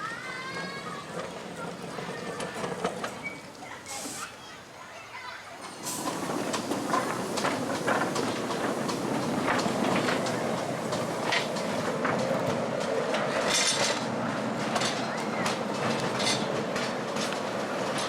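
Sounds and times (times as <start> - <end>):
miniature train wheels clicking: 5.6 - 18.0.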